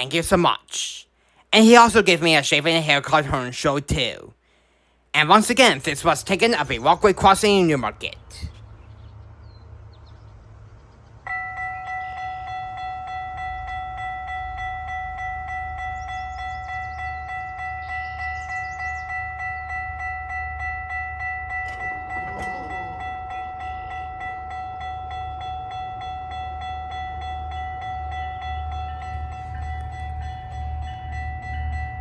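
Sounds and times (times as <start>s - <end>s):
crossing signal ringing: 0.0s - 0.9s, 5.2s - 8.6s, 11.2s - 32.0s
train low pulsing rumble: 8.0s - 32.0s
short clatter: 21.6s - 23.6s.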